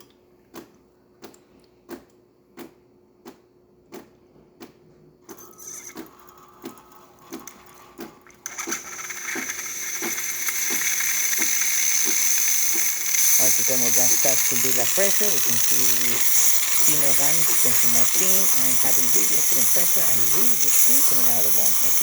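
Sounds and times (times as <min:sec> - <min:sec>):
espresso machine ticking: 0:05.4 - 0:22.0
steam wand hissing: 0:06.6 - 0:22.0.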